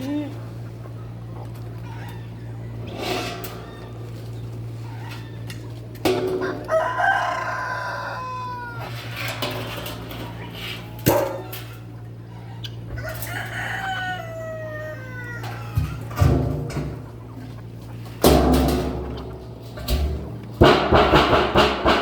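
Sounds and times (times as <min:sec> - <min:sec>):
rooster crowing: 0:06.3 - 0:09.2, 0:12.5 - 0:16.3
steady low hum: 0:14.1 - 0:22.0.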